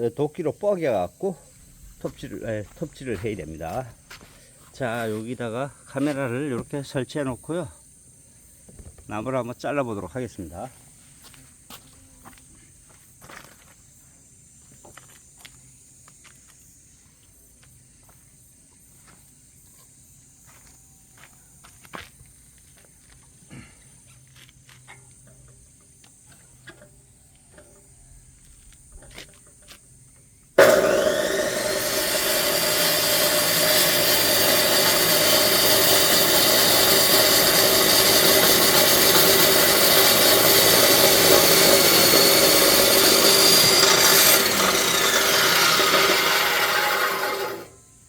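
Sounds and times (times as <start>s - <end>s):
chop saw cutting log: 30.6s - 47.7s.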